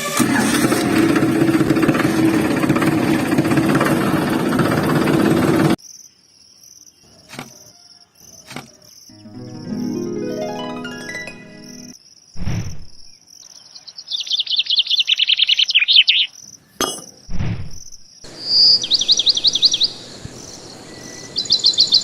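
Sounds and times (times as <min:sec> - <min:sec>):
small motor humming and rattling: 0:00.0 - 0:05.8
cricket-like chirping: 0:05.8 - 0:09.9, 0:11.5 - 0:22.0.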